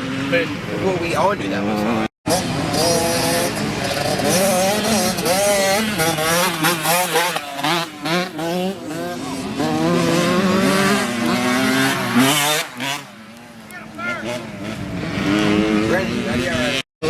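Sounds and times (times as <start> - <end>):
dirt bike engines revving: 0.0 - 16.9.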